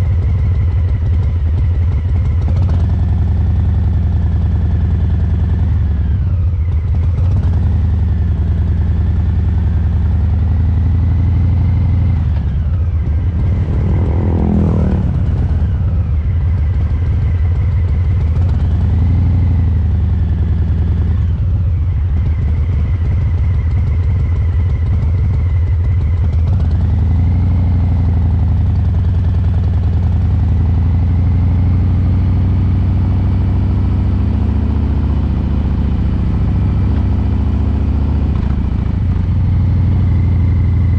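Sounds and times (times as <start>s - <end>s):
motorcycle exhaust loping: 10.4s - 19.4s.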